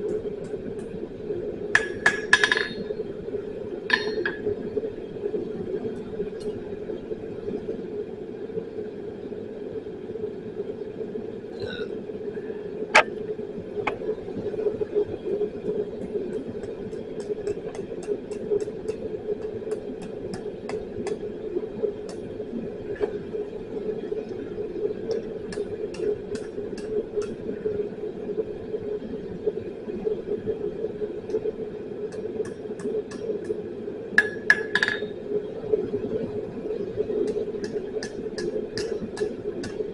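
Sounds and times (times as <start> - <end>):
light ticks and clicks: 37.2 - 39.9.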